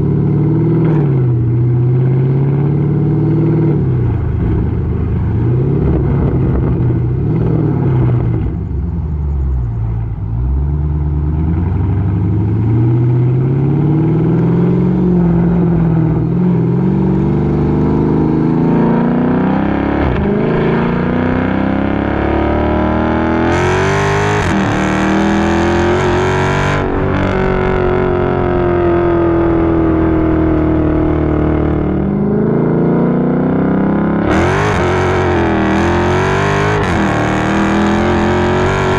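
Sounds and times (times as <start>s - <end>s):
car engine revving loud: 11.2s - 38.9s.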